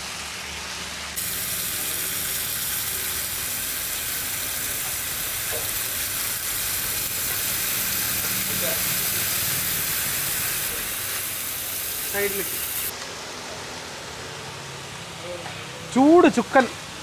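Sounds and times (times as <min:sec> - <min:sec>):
chicken sizzling on griddle: 0:00.0 - 0:12.9.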